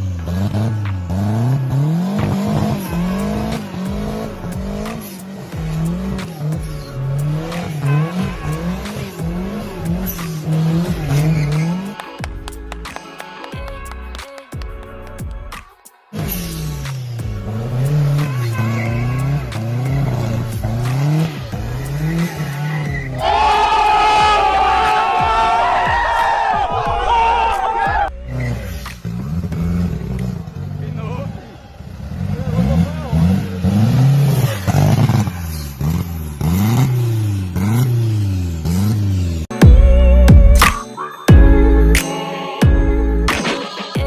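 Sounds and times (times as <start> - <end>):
go-kart engine revving: 0.0 - 12.2, 16.2 - 25.8, 27.7 - 39.5.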